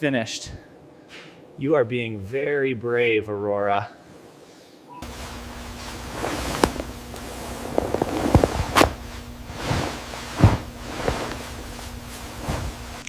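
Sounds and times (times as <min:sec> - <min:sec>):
faint steady hum: 0:00.0 - 0:13.0
rustling: 0:05.0 - 0:13.0
knocks and thumps: 0:09.7 - 0:11.6.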